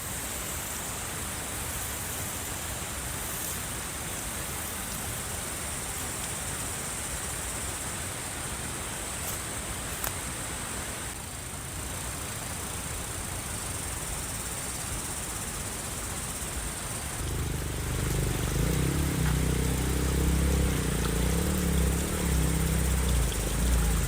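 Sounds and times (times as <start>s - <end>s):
steady hiss: 0.0s - 24.0s
motor droning: 17.1s - 24.0s.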